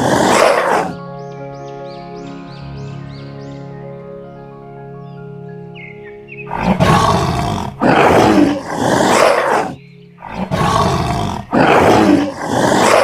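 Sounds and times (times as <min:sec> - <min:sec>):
big cat roaring: 0:00.0 - 0:01.0, 0:06.5 - 0:13.0.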